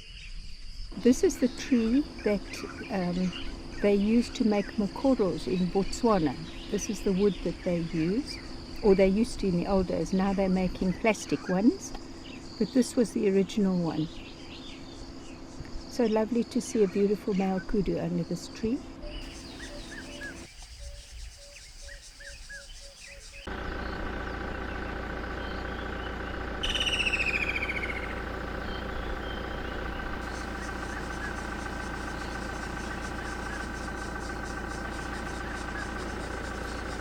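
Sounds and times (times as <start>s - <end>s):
birds chirping: 18.3s - 37.0s
steady hum of sustained tones: 23.2s - 37.0s
bird call of sliding high notes: 26.6s - 37.0s.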